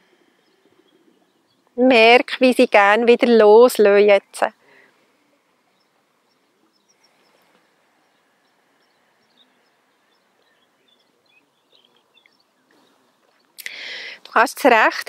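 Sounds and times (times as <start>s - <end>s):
high bird chirps: 5.7s - 13.6s.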